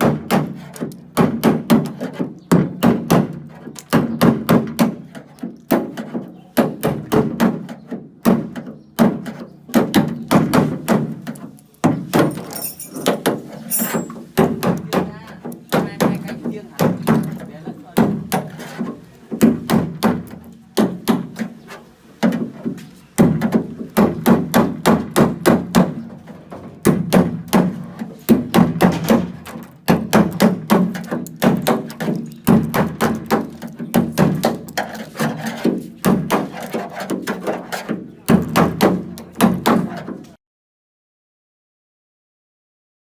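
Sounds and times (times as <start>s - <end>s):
hammer striking sheet metal: 26.8s - 40.1s.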